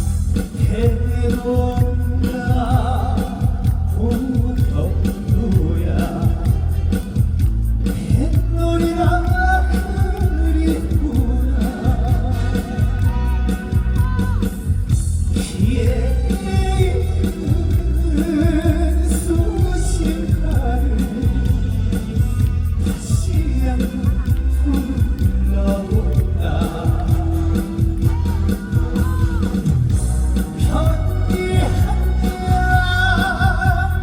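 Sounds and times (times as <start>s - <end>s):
amplified backing music with beat: 0.0s - 34.0s
man singing: 0.0s - 34.0s.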